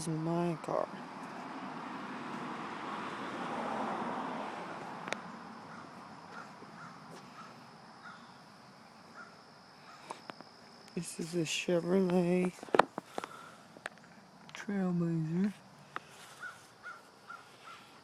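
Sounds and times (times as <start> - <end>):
faint short bird calls: 16.2 - 18.0.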